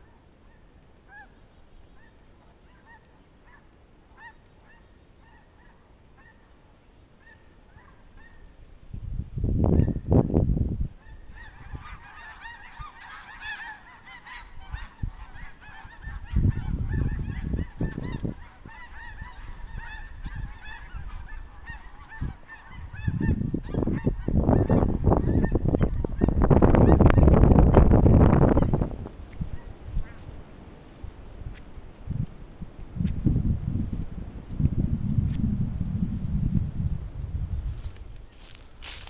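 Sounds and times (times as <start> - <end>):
flock of geese honking: 0.0 - 6.5, 7.2 - 8.5, 11.0 - 31.0.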